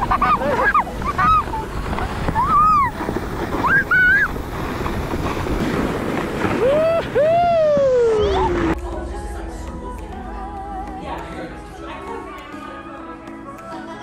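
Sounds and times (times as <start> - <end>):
wind rushing over microphone: 0.0 - 8.8
child squealing: 3.6 - 4.3, 6.6 - 8.7.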